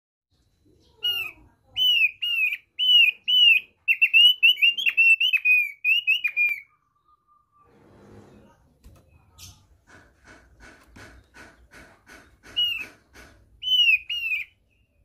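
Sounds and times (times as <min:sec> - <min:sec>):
bird whistling song: 0:00.8 - 0:07.7, 0:12.4 - 0:13.0, 0:13.6 - 0:15.0.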